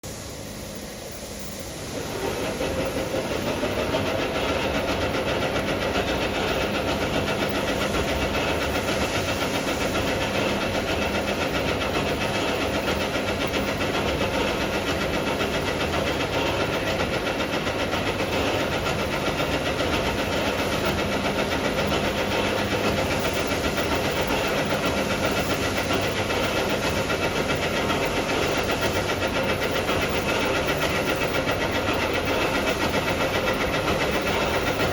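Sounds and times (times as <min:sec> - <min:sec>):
can washing machine running: 0:00.0 - 0:34.9
faint motor hum: 0:00.0 - 0:34.9.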